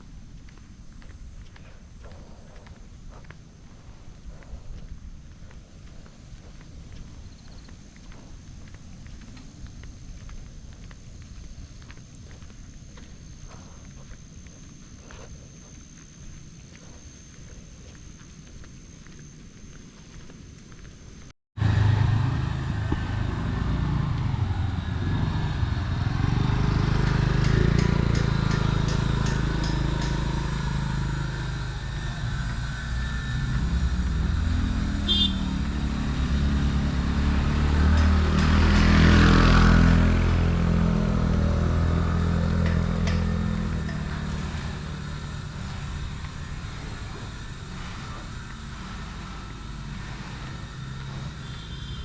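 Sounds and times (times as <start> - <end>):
vehicle engine running: 21.6 - 52.0.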